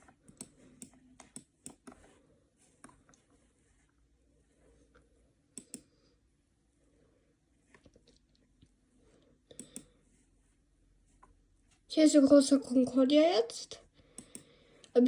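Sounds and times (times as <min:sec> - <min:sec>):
computer mouse clicks: 0:00.0 - 0:02.1, 0:05.6 - 0:05.9, 0:09.5 - 0:09.9, 0:14.2 - 0:15.0.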